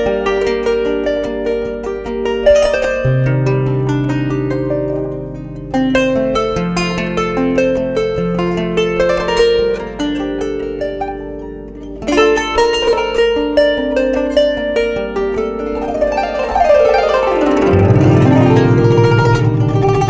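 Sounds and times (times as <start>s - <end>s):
plucked zither melody: 0.0s - 20.0s.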